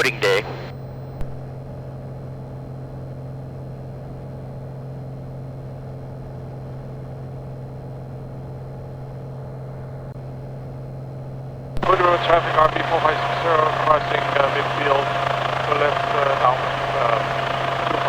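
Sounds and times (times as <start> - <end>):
light aircraft engine drone: 0.0 - 18.0.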